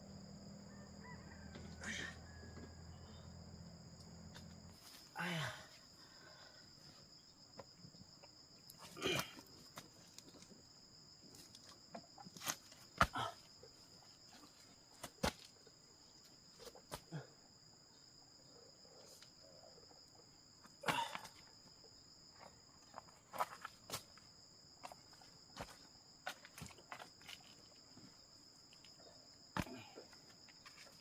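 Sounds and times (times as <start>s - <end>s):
high insect drone: 0.0s - 31.0s
knocks and scuffs: 11.4s - 13.4s.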